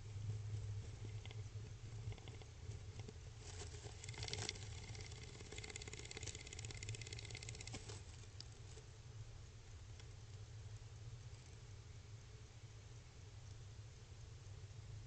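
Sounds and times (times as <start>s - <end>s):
faint low hum: 0.0s - 15.0s
bird clicking and scratching: 0.6s - 8.8s.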